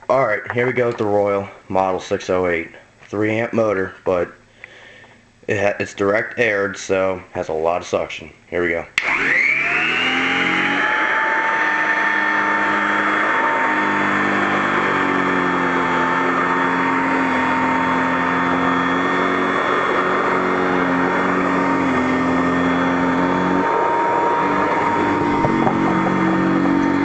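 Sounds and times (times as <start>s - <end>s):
vacuum cleaner motor whining: 9.0s - 27.0s.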